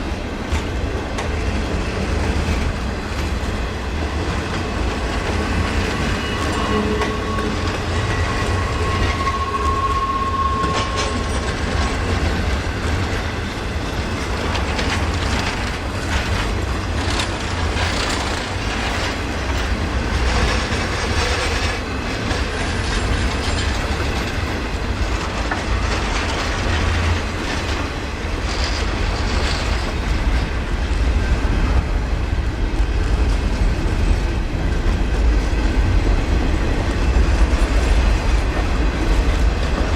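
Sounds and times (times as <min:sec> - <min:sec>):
wheels clacking over rail joints: 0:00.0 - 0:31.9
train wheels rumbling on rail: 0:00.0 - 0:39.9
thin squealing tone: 0:06.0 - 0:11.4.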